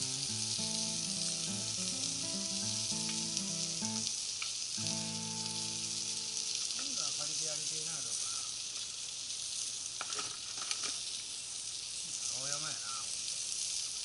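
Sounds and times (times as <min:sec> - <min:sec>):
background music melody: 0:00.0 - 0:04.2, 0:04.8 - 0:07.0
food sizzling in a pan: 0:00.0 - 0:14.0.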